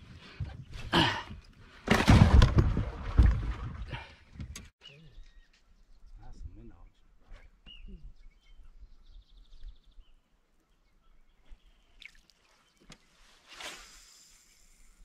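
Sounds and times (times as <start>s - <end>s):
faint bird chirps: 4.8s - 13.0s.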